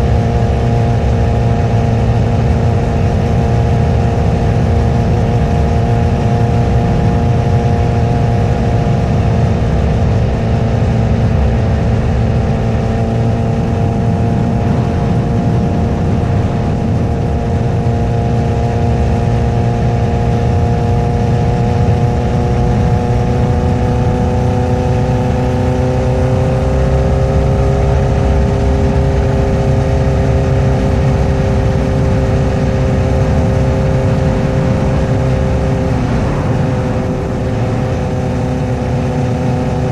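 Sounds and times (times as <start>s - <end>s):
motorcycle engine cruising: 0.0s - 39.9s
low-pitched rushing noise: 11.7s - 20.2s, 31.0s - 39.9s.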